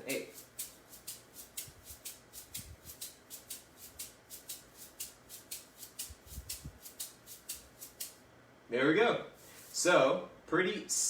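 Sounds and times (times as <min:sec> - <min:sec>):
hand shaker shuffle beat: 0:00.0 - 0:08.2, 0:09.4 - 0:09.9.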